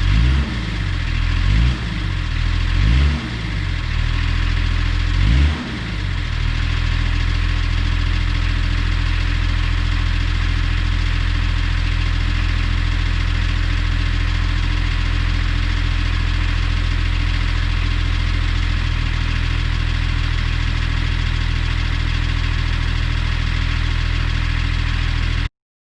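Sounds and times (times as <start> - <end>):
diesel engine idling: 0.0 - 25.5.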